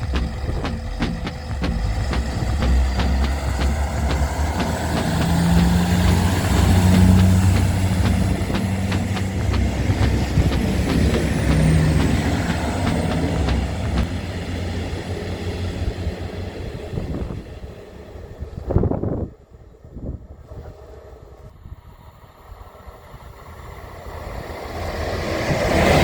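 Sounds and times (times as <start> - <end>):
train wheels clattering on rails: 0.0 - 14.6
train engine drone: 0.0 - 26.0.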